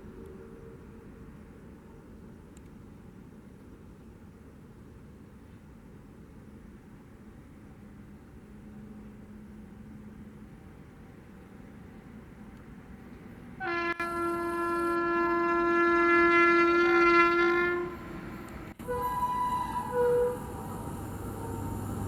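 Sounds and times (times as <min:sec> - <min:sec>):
train rumbling: 0:05.5 - 0:22.0
train horn blast: 0:13.6 - 0:18.2, 0:18.8 - 0:22.0.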